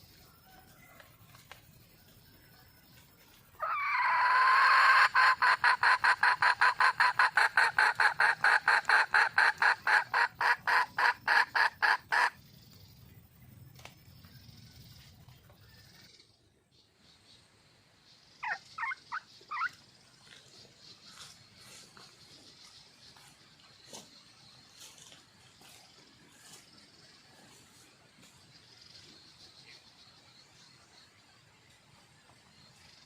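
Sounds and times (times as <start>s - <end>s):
hen calling with rapid clucks: 3.6s - 12.4s, 18.3s - 23.3s.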